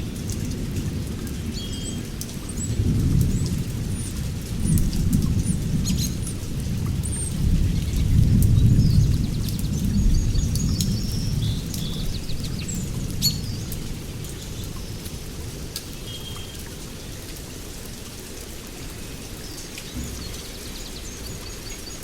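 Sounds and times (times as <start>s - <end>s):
rain drips: 0.0s - 22.0s
rolling thunder rumbles: 2.6s - 14.1s
songbirds chirping and whistling: 5.4s - 6.4s, 7.0s - 13.8s, 19.1s - 22.0s.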